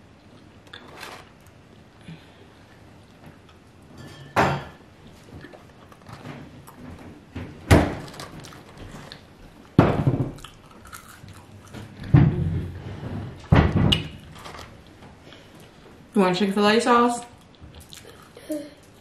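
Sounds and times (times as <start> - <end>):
person chewing fries: 10.3 - 12.0, 17.4 - 19.0.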